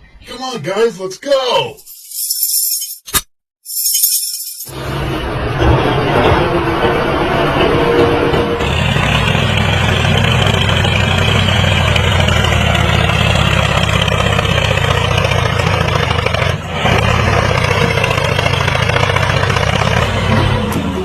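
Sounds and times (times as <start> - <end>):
engine running: 4.7 - 21.0.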